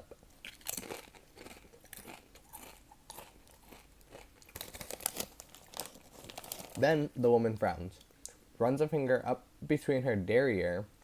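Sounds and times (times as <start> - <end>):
chewing crunchy chips: 0.2 - 6.9.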